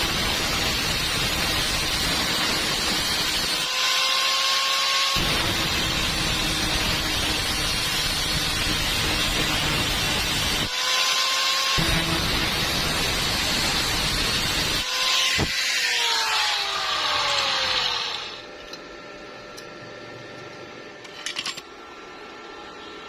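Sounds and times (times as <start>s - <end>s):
power tool whining and hissing: 0.0s - 18.5s.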